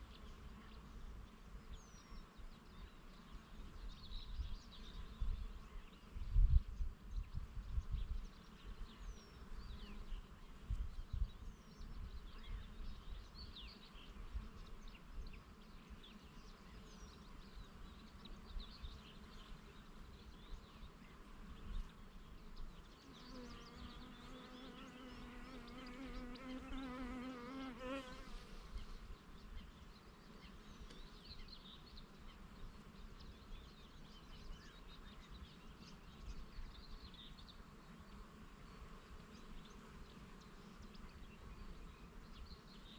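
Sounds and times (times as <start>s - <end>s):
wind rumble on microphone: 4.0s - 9.8s, 10.5s - 13.6s
birds chirping: 7.1s - 42.9s
bee buzzing: 12.4s - 29.4s.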